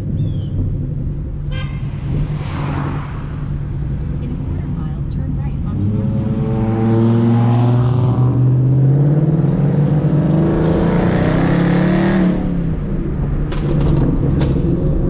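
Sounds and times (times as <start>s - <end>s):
car engine accelerating: 0.0s - 15.0s
rush of noise: 1.8s - 7.1s.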